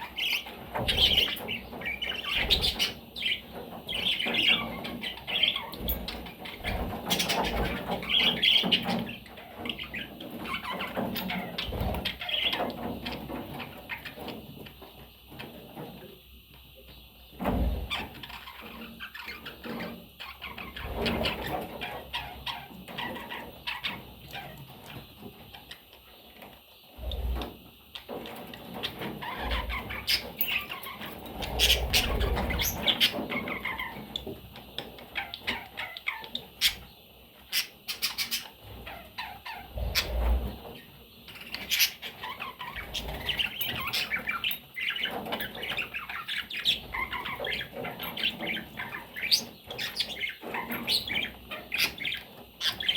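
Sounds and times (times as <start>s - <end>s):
budgerigars chirping: 0.0s - 14.8s, 17.9s - 25.9s, 28.8s - 52.9s.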